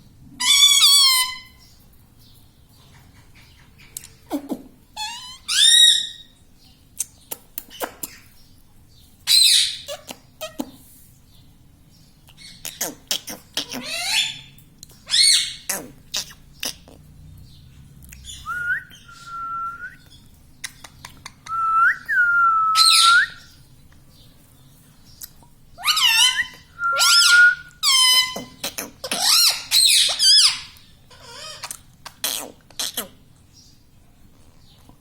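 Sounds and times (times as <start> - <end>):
parakeet whistling and squawking: 0.4 - 1.6, 5.0 - 6.3, 9.3 - 10.6, 12.4 - 14.5, 15.1 - 16.9, 22.7 - 23.5, 25.8 - 33.1.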